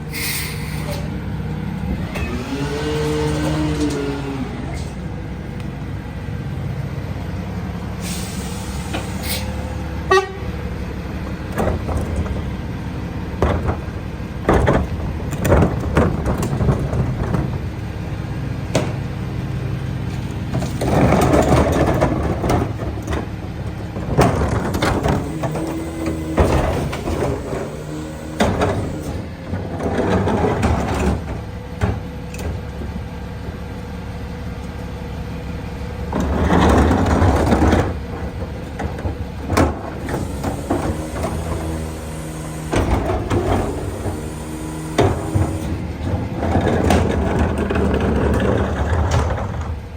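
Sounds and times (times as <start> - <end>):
garbage truck running: 0.0 - 49.9
recyclables crashing and rattling: 20.1 - 33.0, 36.0 - 49.9.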